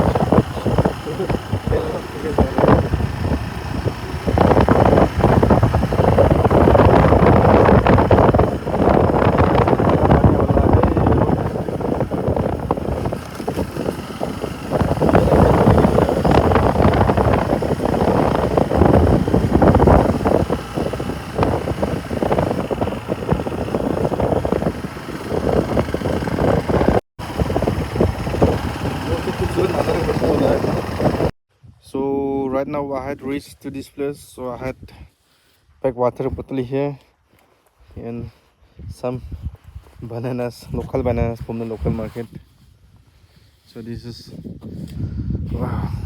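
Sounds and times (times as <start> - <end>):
motorcycle engine at speed: 0.0 - 31.4
wind buffeting microphone: 0.0 - 31.8, 37.9 - 46.0.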